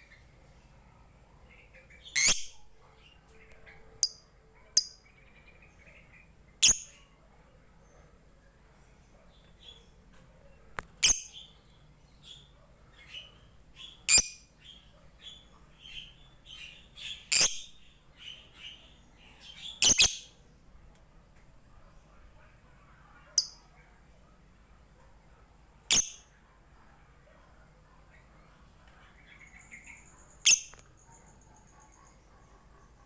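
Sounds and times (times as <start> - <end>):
lovebird chirping: 1.6 - 2.6, 4.8 - 7.0, 11.0 - 20.4, 23.4 - 23.6, 25.9 - 26.3, 29.1 - 32.4.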